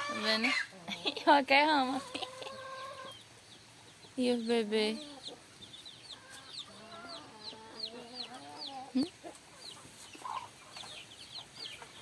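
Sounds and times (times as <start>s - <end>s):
chicks peeping: 0.0s - 12.0s
hen clucking: 0.0s - 12.0s.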